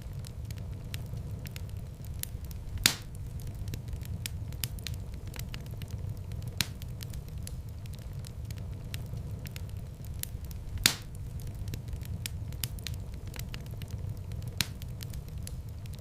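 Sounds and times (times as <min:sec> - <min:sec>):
fire flames rumbling: 0:00.0 - 0:16.0
wood fire popping and snapping: 0:00.0 - 0:16.0.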